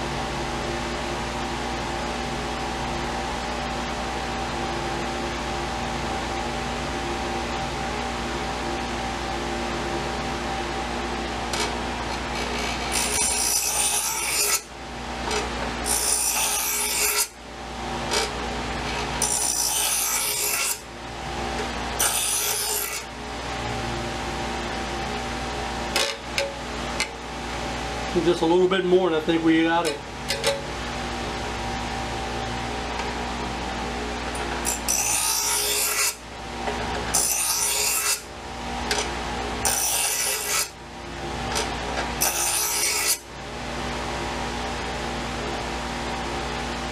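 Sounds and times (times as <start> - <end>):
grinder motor humming: 0.0 - 44.8
knife grinding on power grinder: 10.9 - 23.3, 24.4 - 27.4, 32.7 - 43.3
hand tool rasping along steel blade: 12.1 - 14.6, 15.9 - 17.3, 39.6 - 40.7.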